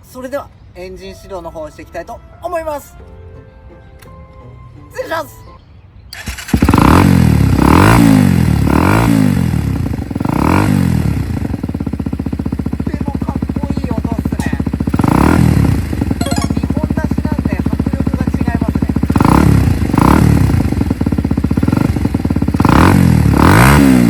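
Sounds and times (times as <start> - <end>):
motorcycle engine revving and idling: 6.2 - 16.2, 16.8 - 24.0.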